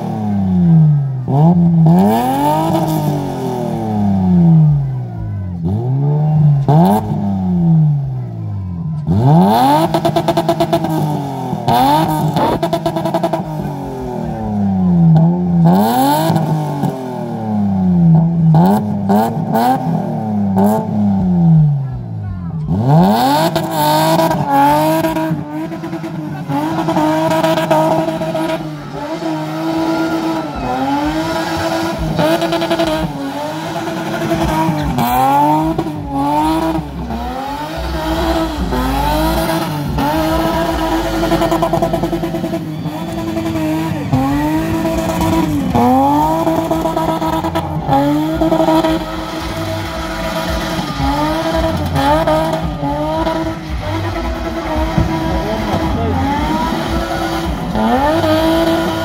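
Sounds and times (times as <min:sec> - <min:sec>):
car engine at high revs: 0:00.0 - 0:59.0
spinning tyres hissing: 0:22.8 - 0:59.0.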